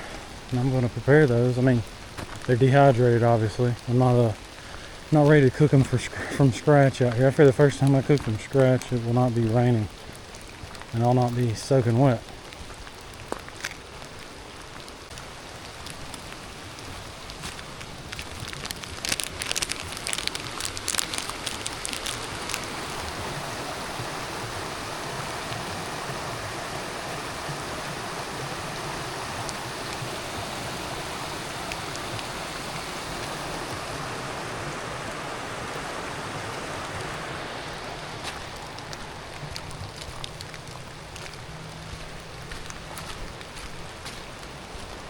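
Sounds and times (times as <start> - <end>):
steady rain hiss: 0.0 - 45.0
sharp crackling clicks: 17.7 - 23.0.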